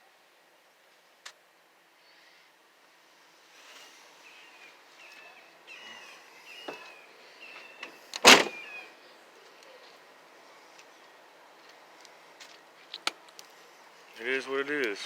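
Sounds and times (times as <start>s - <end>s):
loud clank: 8.2s - 8.6s.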